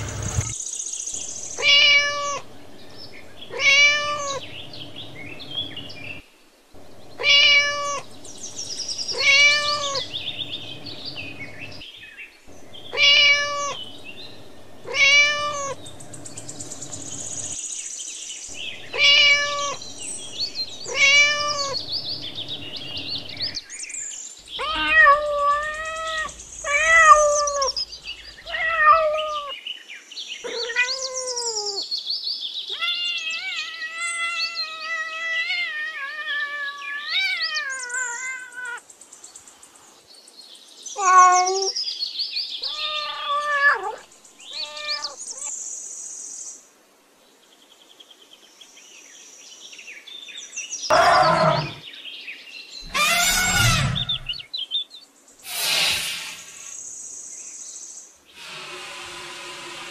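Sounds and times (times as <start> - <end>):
cat meowing: 1.6 - 2.4, 3.5 - 4.4, 7.2 - 8.1, 9.1 - 10.1, 12.9 - 13.8, 14.8 - 15.8, 18.9 - 19.8, 20.9 - 21.8, 24.6 - 27.8, 28.4 - 29.6, 30.5 - 31.8, 32.7 - 38.8, 41.0 - 41.7, 42.6 - 45.5, 52.8 - 54.4.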